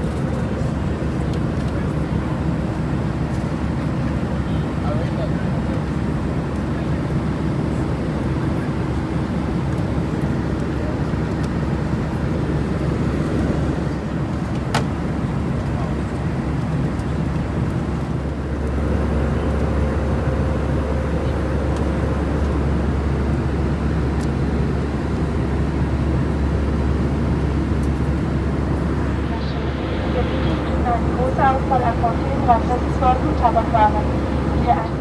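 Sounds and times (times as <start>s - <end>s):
jet engine and airflow rumble: 0.0s - 35.0s
low hum: 27.5s - 35.0s.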